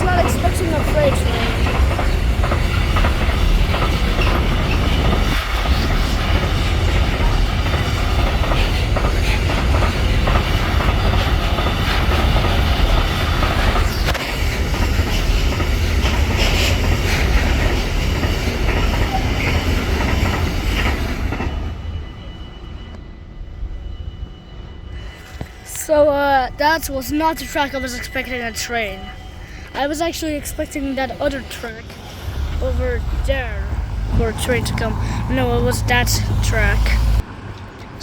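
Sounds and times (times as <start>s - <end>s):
freight train wheels clacking: 0.0s - 22.1s.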